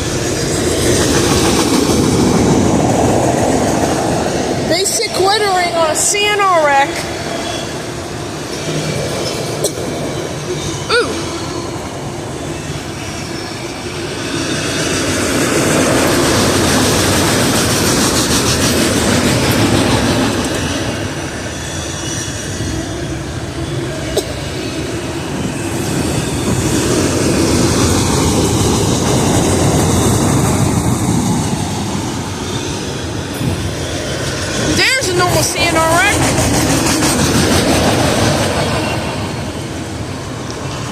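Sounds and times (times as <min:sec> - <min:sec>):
freight train wheels rumbling: 0:00.0 - 0:40.9
wheel squeal: 0:07.3 - 0:08.0.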